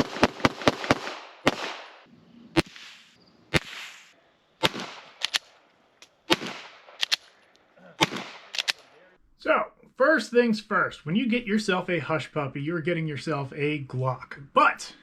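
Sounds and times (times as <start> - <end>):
gunshots with echo: 0.0 - 2.0, 8.0 - 8.5.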